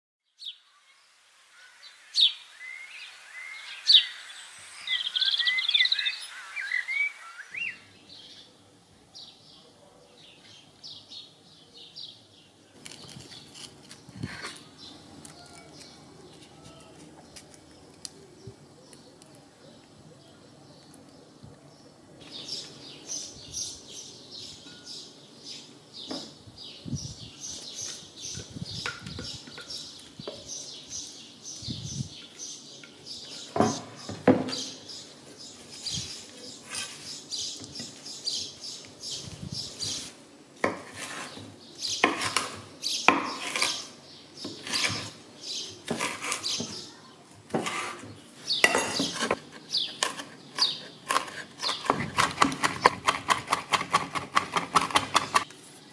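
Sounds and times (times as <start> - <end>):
knife chopping on wooden board: 42.0 - 43.8, 48.8 - 55.4.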